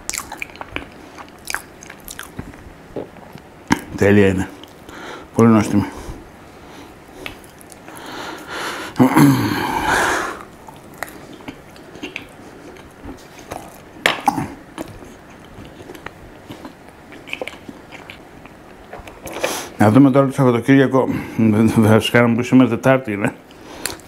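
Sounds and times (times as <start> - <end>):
person chewing: 0.0 - 4.0, 7.2 - 19.7
throaty noise: 7.8 - 12.3.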